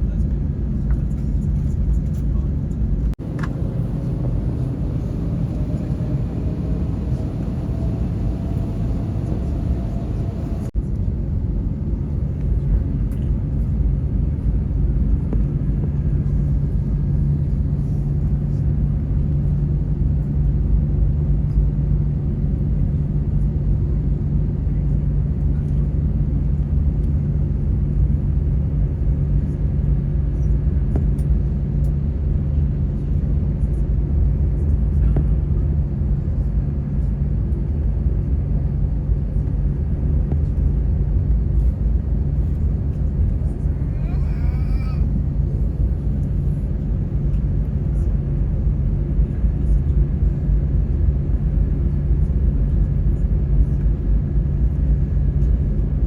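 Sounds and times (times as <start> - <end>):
jet engine rumble and hum: 0.0 - 56.0
faint rising whine: 3.2 - 10.8.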